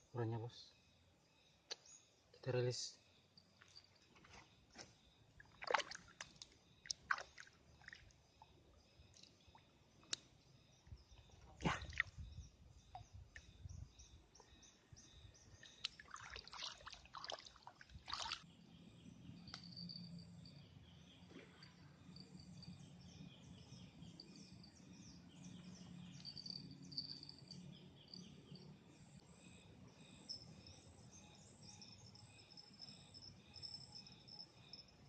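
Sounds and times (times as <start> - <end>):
insects chirping: 0.0 - 35.0.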